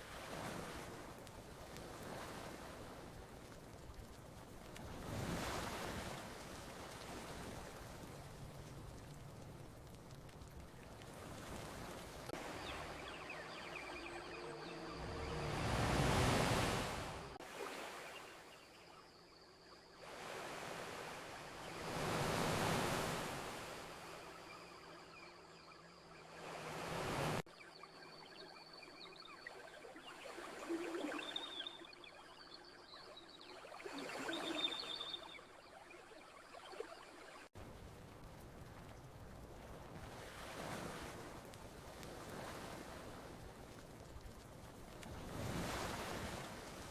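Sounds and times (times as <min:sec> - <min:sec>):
ocean waves washing onto shore: 0:00.0 - 0:46.9
faint high chirps: 0:12.4 - 0:20.0, 0:27.6 - 0:37.5.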